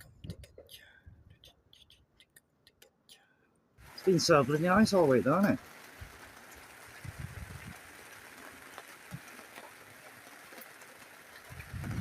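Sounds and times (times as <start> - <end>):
rain hissing: 3.8 - 12.0.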